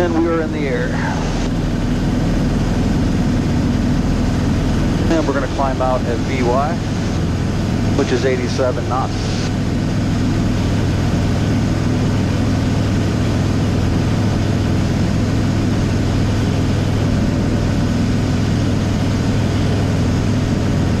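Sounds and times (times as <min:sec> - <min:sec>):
propeller airplane engine droning: 0:00.0 - 0:21.0.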